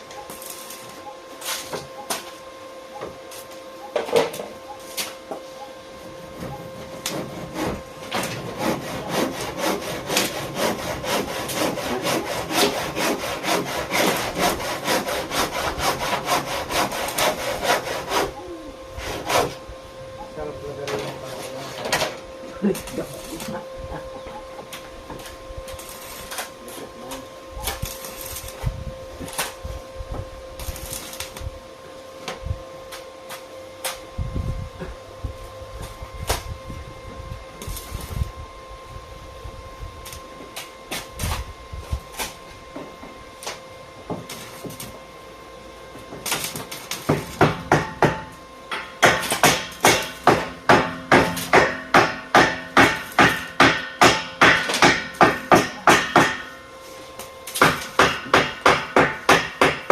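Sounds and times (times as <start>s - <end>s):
hammer striking: 47.1s - 56.5s, 57.6s - 59.9s.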